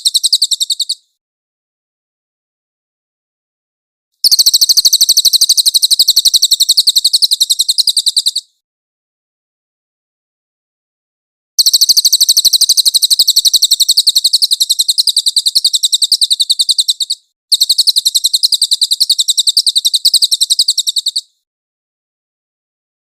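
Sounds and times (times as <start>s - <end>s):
songbird trilling: 0.0s - 1.1s, 4.2s - 8.5s, 11.6s - 21.4s.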